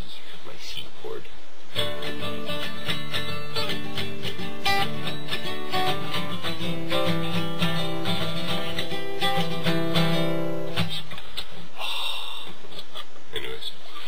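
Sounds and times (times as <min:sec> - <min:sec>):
guitar strummed chords: 0:01.8 - 0:11.1.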